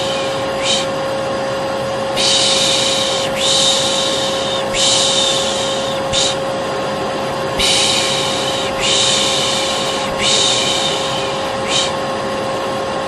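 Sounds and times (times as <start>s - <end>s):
person shushing: 0.0s - 1.0s, 2.2s - 6.5s, 7.6s - 12.0s
vacuum cleaner motor humming: 0.0s - 13.0s.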